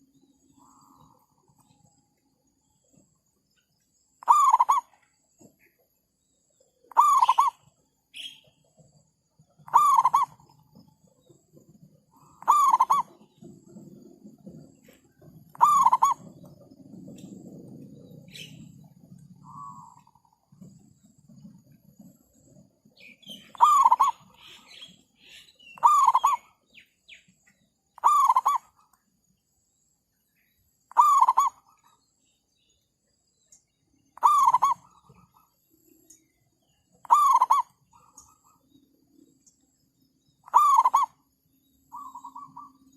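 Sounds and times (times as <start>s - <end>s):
dove cooing: 4.2s - 5.0s, 6.9s - 8.8s, 9.4s - 20.6s, 22.0s - 26.8s, 28.0s - 28.8s, 30.9s - 31.9s, 34.2s - 35.5s, 37.0s - 38.7s, 40.5s - 41.2s, 41.9s - 42.9s.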